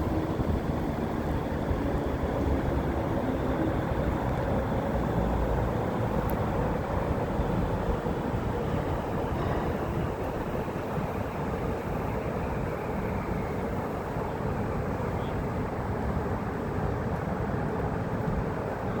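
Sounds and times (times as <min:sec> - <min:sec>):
aerial tram rumbling: 0:00.0 - 0:19.0.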